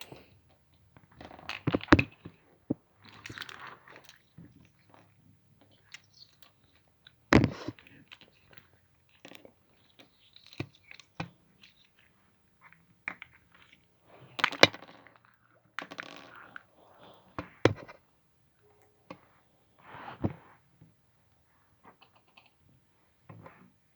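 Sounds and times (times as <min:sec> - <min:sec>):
crackly slime squelches: 0:00.0 - 0:19.3
slime kneaded with stones clicking: 0:00.1 - 0:18.0.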